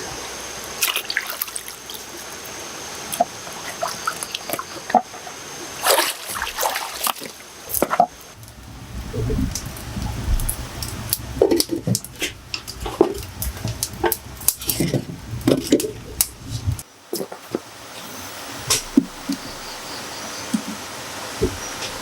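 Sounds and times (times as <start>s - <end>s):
low rumble: 8.3s - 16.8s.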